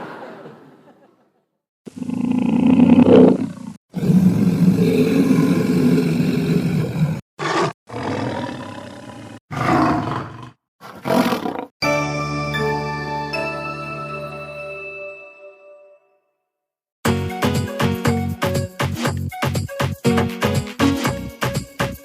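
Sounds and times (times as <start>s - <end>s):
cartoon animal roars and growls: 1.9s - 11.7s
ringing musical chime: 11.8s - 16.2s.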